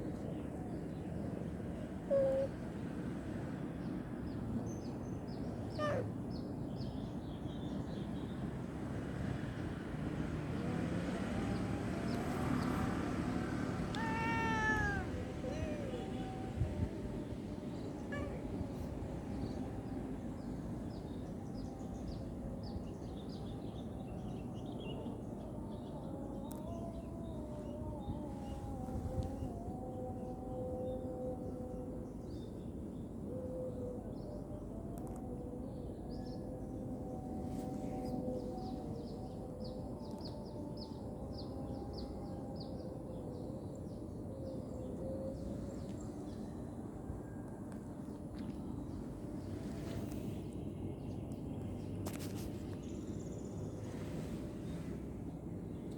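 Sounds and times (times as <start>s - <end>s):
small birds chirping: 13.9s - 16.6s.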